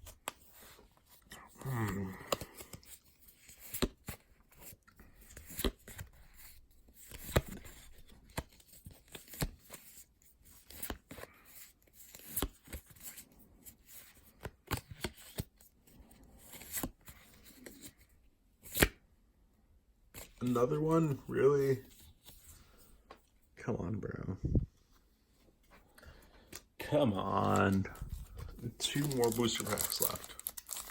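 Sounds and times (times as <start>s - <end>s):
cards clicking and sliding: 0.1s - 15.6s, 16.4s - 18.0s, 18.6s - 19.0s, 27.4s - 30.9s.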